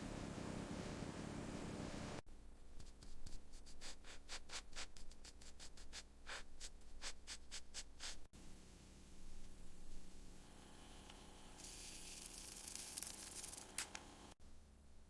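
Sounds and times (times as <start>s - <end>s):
steady hiss: 2.8s - 14.4s.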